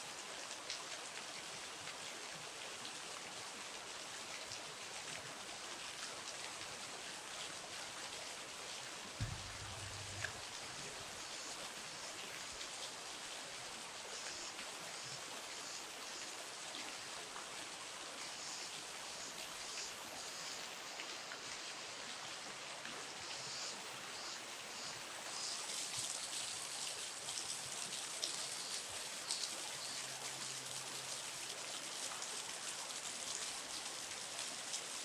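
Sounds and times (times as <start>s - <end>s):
river water rushing: 9.1s - 11.1s
low thump: 9.2s - 10.4s.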